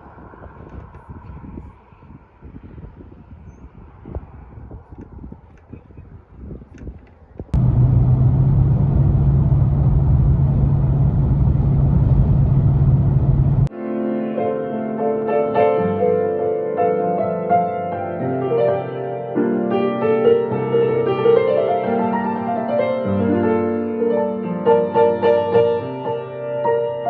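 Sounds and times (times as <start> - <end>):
low vehicle rumble: 7.5 - 13.7
gentle piano music: 13.7 - 27.0.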